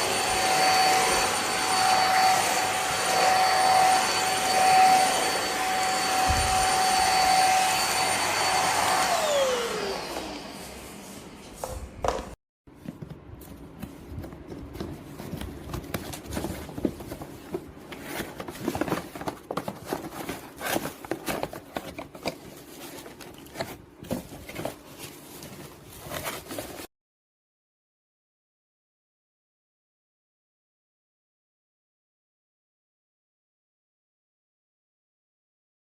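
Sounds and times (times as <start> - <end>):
vacuum motor winding down: 0.0 - 11.0
handheld vacuum whining: 0.0 - 12.3, 14.7 - 26.9.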